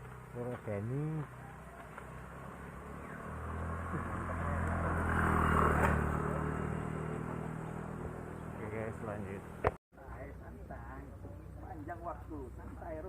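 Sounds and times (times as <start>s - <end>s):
vehicle engine passing by: 0.2s - 9.6s.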